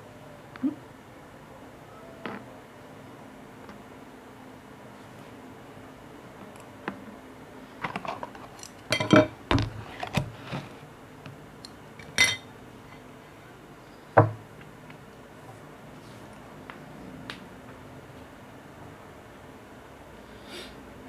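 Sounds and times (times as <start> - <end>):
kitchenware knocks and clinks: 8.9 - 9.6, 12.1 - 12.5.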